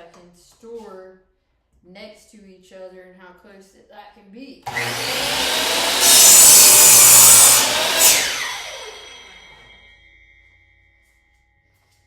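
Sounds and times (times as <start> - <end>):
miter saw cutting wood: 4.7 - 9.9
saw motor winding down: 4.7 - 9.9.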